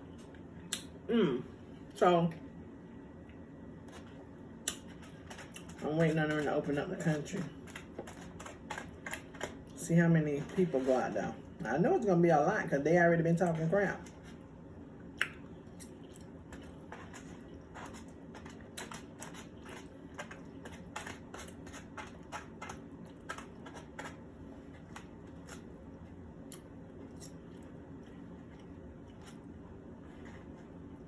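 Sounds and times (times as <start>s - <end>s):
low room hum: 0.0s - 31.0s
chewing clicks and smacks: 4.6s - 5.7s.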